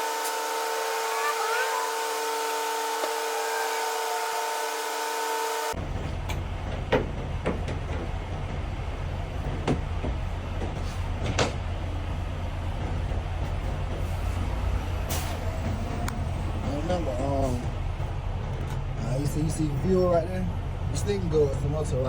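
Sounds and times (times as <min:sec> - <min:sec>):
mechanical whine: 0:00.0 - 0:06.6
diesel truck engine idling: 0:00.0 - 0:22.0.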